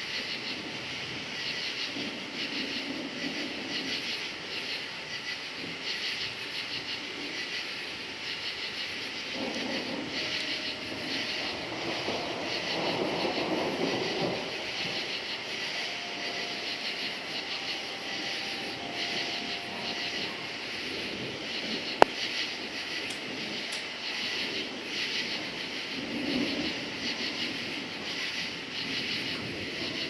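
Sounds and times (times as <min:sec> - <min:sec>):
crickets chirping: 0:00.0 - 0:30.0
distant thunder rumble: 0:08.2 - 0:30.0.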